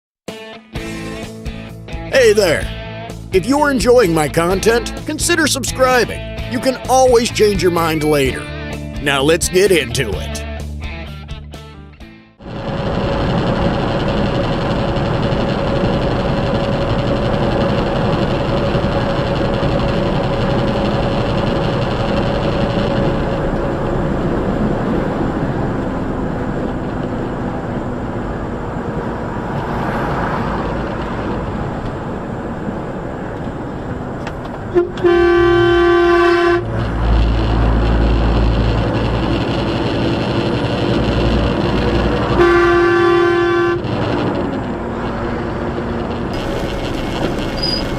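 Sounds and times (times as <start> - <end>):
vehicle road and engine noise: 0.8 - 11.7, 12.4 - 47.9
loud vehicle horn: 34.7 - 44.5, 46.3 - 47.9.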